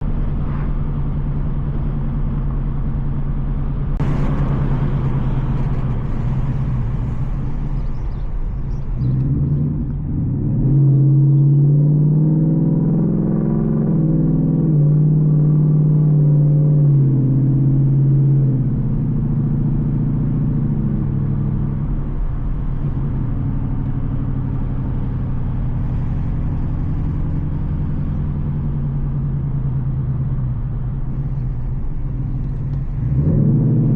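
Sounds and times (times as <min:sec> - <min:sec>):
car exhaust rumbling: 0:00.0 - 0:33.9
hiss burst: 0:04.0 - 0:08.7.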